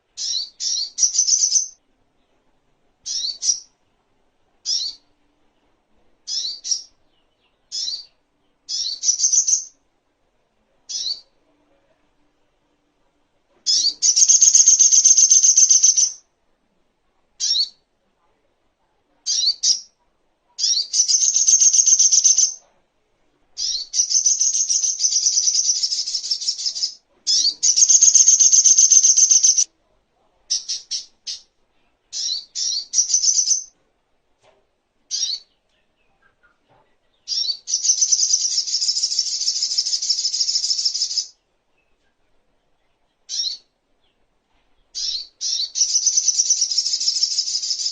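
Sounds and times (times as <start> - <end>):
bird chattering trills: 13.7 - 16.2, 23.6 - 29.7.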